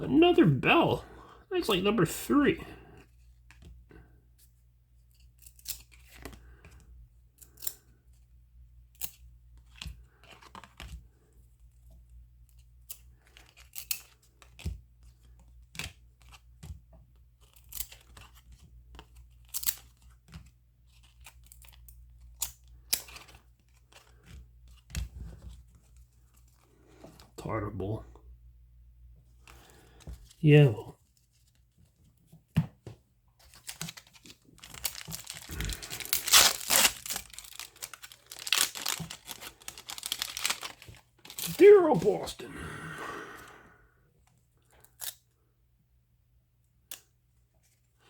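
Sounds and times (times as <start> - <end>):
cards tearing and rustling: 5.2 - 6.6, 9.0 - 11.2, 12.5 - 16.6, 17.4 - 26.8, 33.4 - 42.3
cards snapping and clicking: 12.9 - 14.8.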